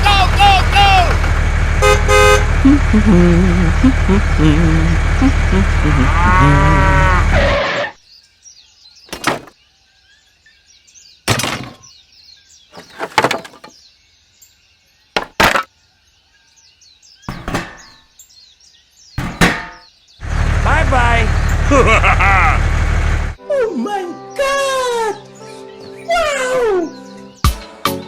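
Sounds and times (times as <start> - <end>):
cow mooing: 6.0 - 7.4
birdsong: 7.9 - 22.5, 23.4 - 28.0
loud bangs and crashes: 9.1 - 9.5, 11.3 - 11.8, 15.2 - 15.7.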